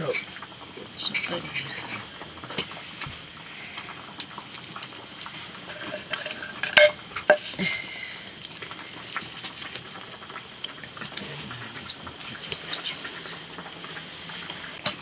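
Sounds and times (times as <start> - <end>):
metal pots and utensils clattering: 4.2 - 10.2.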